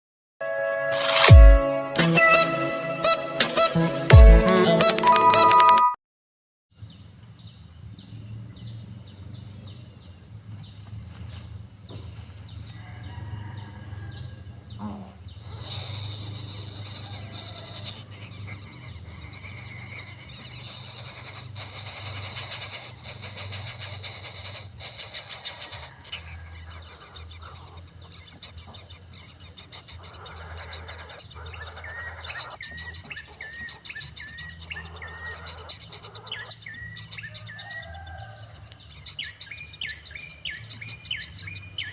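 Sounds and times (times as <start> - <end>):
bird chirps: 6.8 - 41.9
insect buzzing: 12.9 - 38.6.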